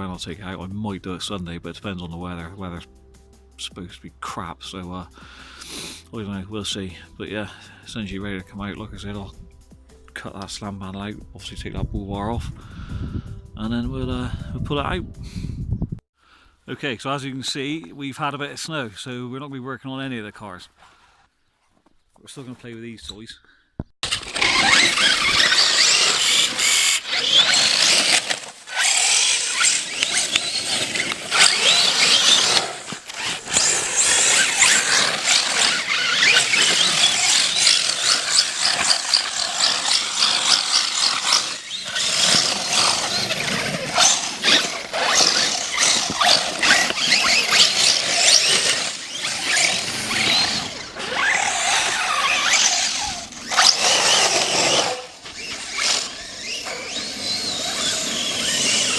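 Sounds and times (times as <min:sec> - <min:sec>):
electric motor whining: 0:24.0 - 0:58.9.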